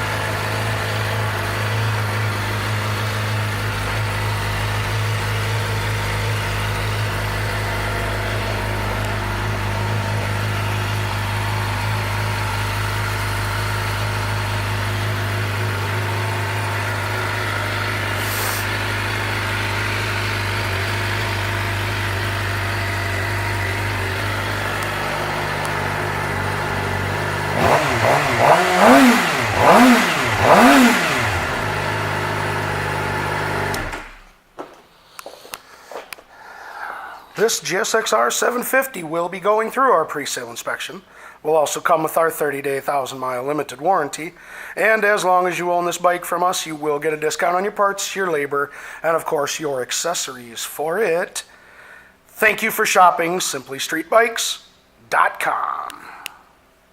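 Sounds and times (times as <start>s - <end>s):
motorcycle engine idling and revving: 0.0s - 34.3s.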